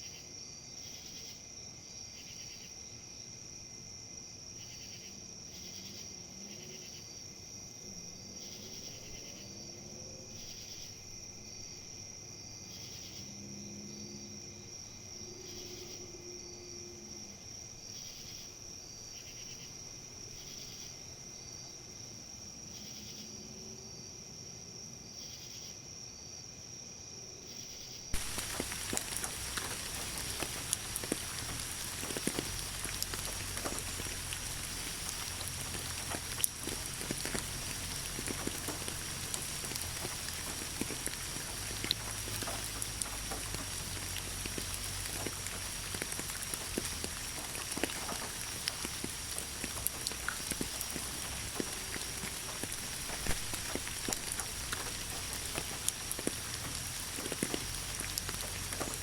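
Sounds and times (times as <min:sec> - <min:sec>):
insects trilling: 0:00.0 - 0:59.0
rain falling: 0:28.1 - 0:59.0.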